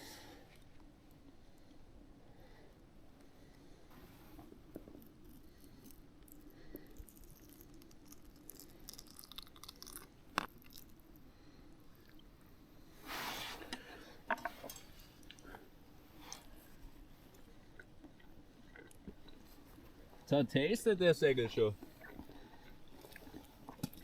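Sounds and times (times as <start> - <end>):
person chewing food: 4.3 - 12.4, 13.6 - 20.3, 21.8 - 24.0.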